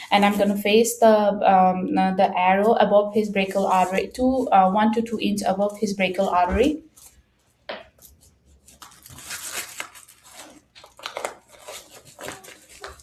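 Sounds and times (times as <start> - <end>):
scratchy rasping velcro noises: 8.0 - 13.0.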